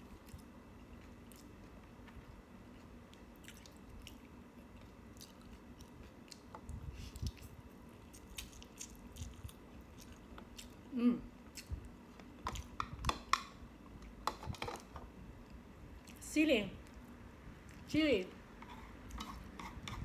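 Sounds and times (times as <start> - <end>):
person chewing: 0.0 - 13.0, 18.6 - 20.0.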